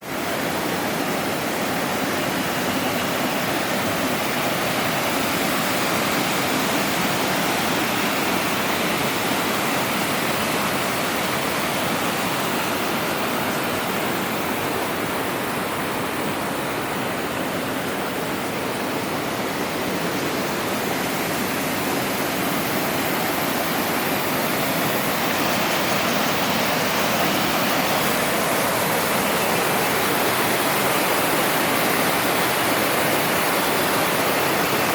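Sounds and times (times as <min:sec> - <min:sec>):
water rushing over rocks: 0:00.0 - 0:34.9.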